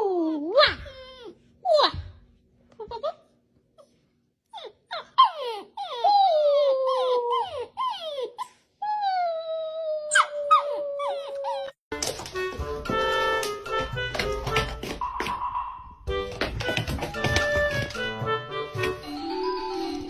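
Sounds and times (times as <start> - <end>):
dog whining and howling: 4.5 - 11.8.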